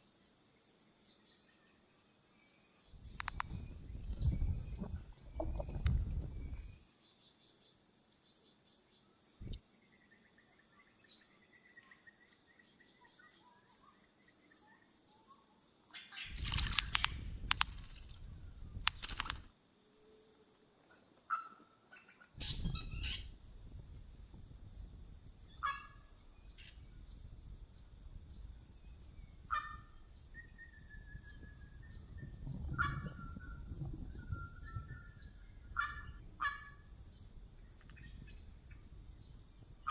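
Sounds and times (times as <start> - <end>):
lower bird calls and whistles: 2.4 - 39.9
high bird chirps: 16.2 - 19.5, 22.4 - 39.9.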